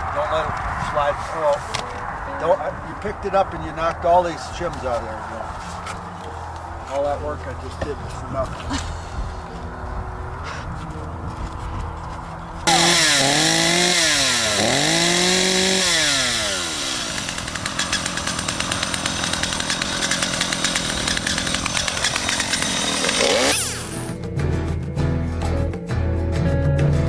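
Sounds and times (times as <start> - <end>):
chainsaw revving: 12.6 - 24.2
guitar music: 23.5 - 26.8.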